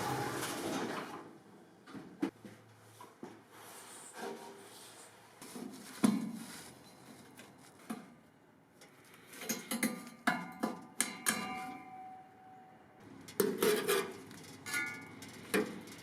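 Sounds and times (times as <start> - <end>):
metal tools clinking: 13.4 - 16.0.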